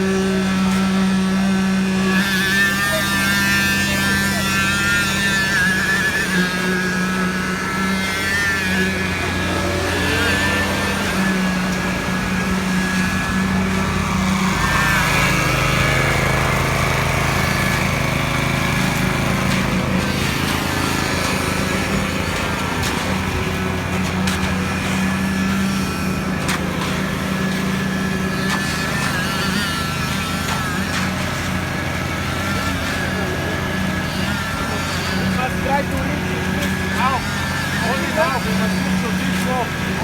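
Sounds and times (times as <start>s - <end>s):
machine engine running steadily: 0.0s - 40.0s.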